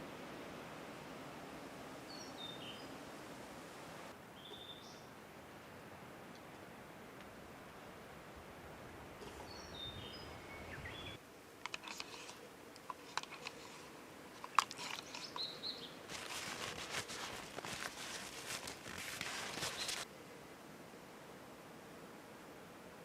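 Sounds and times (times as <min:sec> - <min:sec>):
low steady wind: 0:00.0 - 0:23.0
rustling of things being handled: 0:11.6 - 0:20.1.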